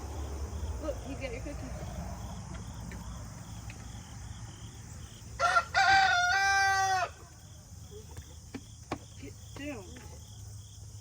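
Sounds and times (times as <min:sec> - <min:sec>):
crickets chirping: 0:00.0 - 0:11.0
rooster crowing: 0:05.4 - 0:07.2.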